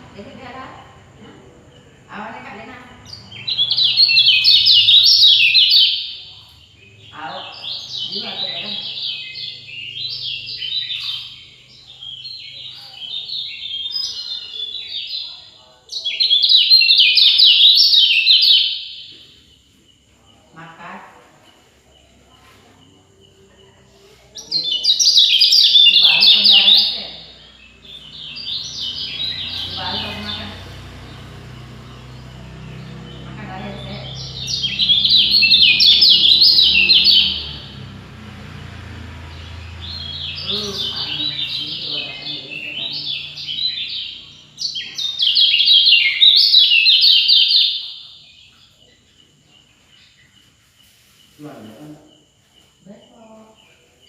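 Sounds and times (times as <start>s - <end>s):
songbird singing descending notes: 2.9s - 19.5s, 24.4s - 50.3s.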